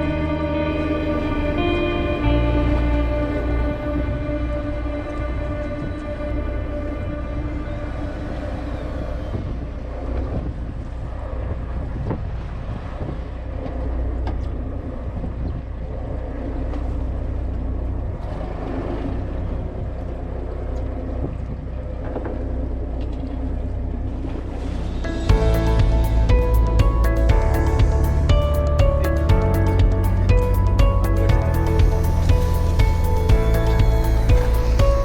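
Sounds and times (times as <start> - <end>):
boat engine rumbling: 0.0 - 35.0
wind buffeting microphone: 1.5 - 18.4.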